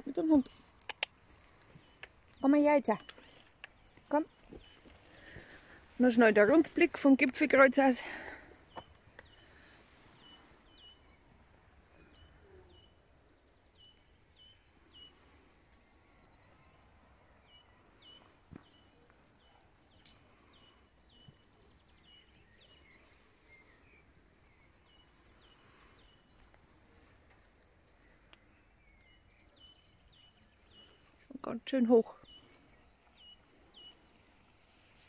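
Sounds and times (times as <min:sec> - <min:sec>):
distant bird singing: 0:00.0 - 0:35.0
faint click: 0:00.8 - 0:01.1.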